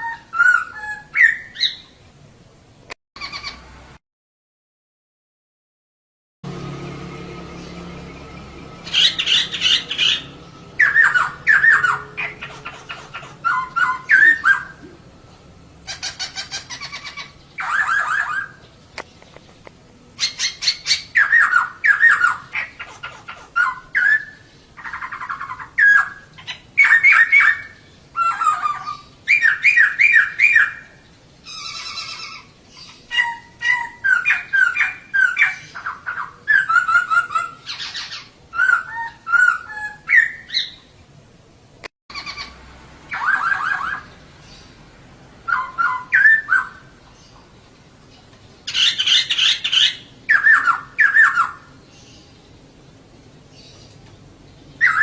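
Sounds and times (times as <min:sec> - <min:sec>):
bird chattering calls: 0:03.2 - 0:03.7, 0:08.8 - 0:15.0, 0:15.8 - 0:40.9, 0:42.1 - 0:44.7, 0:45.5 - 0:47.6, 0:48.2 - 0:52.3, 0:54.8 - 0:55.0.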